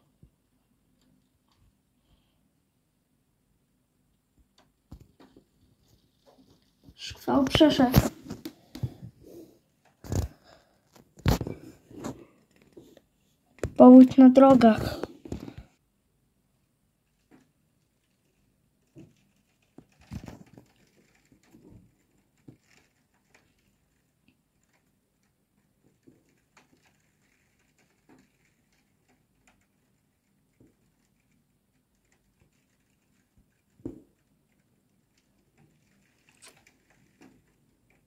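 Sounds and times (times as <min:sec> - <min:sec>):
raindrops tapping on a window: 0:18.2 - 0:38.0.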